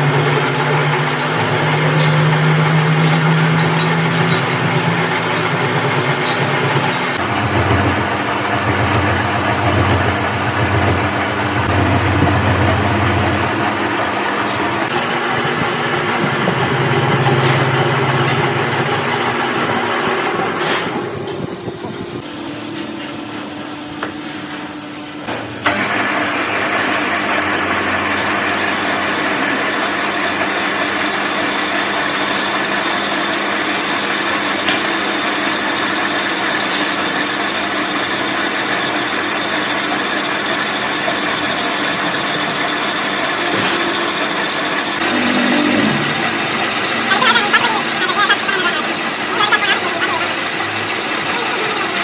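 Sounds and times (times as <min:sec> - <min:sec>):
truck engine running: 0:00.0 - 0:22.2, 0:27.2 - 0:52.0.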